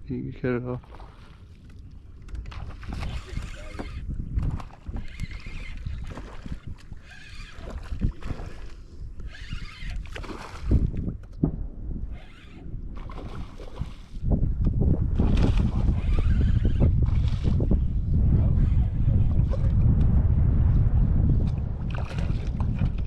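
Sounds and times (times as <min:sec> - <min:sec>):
water sloshing around a boat: 0:00.4 - 0:11.4, 0:12.1 - 0:17.6.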